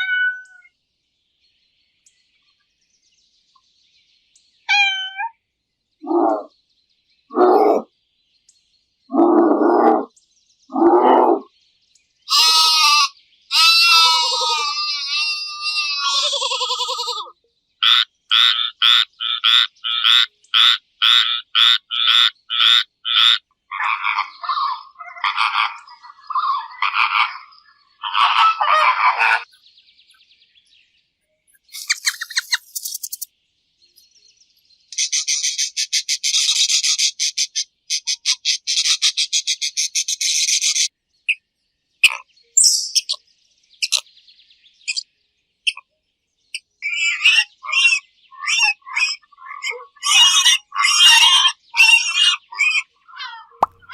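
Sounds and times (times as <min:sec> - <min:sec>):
short animal calls: 0:06.0 - 0:06.5.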